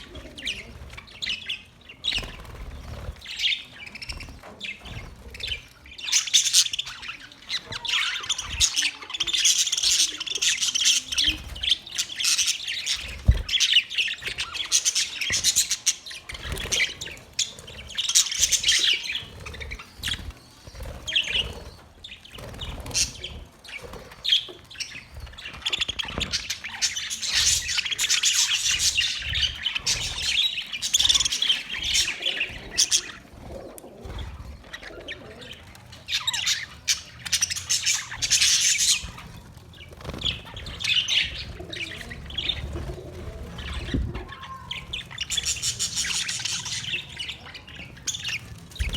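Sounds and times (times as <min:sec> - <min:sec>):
budgerigars chattering and chirping: 0:00.0 - 0:48.9
bird squawks: 0:22.6 - 0:48.9.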